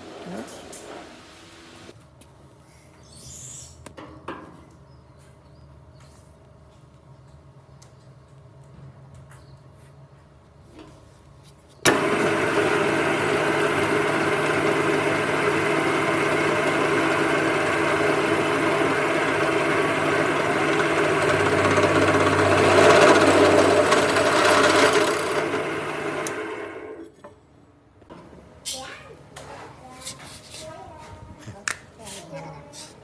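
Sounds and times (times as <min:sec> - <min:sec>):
motor running: 0:11.9 - 0:27.1.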